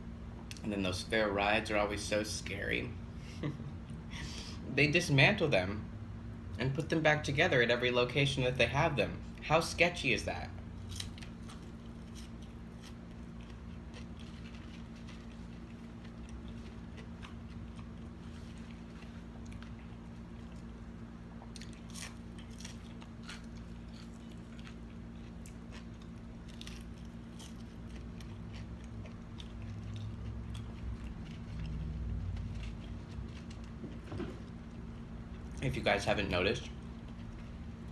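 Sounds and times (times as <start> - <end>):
steady low hum: 0.0 - 37.9
chewing crunches: 10.8 - 35.9.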